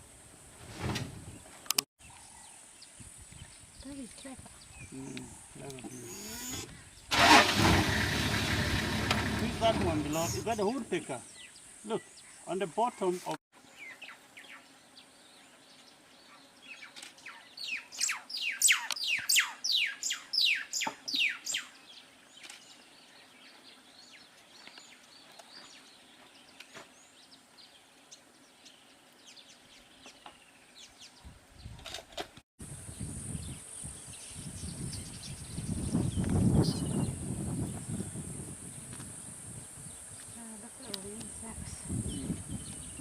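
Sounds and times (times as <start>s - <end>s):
high-pitched insect drone: 6.0s - 6.7s.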